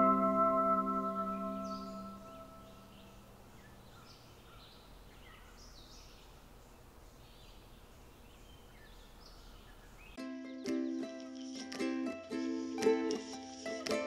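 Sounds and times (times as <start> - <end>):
high bird chirps: 0.0 - 6.4.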